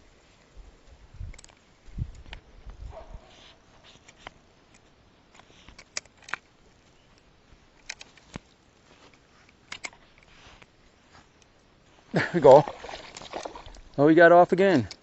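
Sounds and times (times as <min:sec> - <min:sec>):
fishing gear clicks and knocks: 0:01.2 - 0:02.5, 0:03.9 - 0:11.6, 0:14.6 - 0:15.0.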